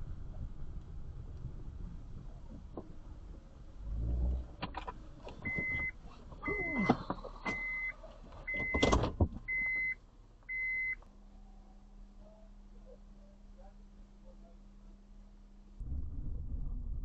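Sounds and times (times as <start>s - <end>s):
knocks and clunks inside vehicle: 4.4s - 10.0s
car warning chime beeping: 5.4s - 11.0s.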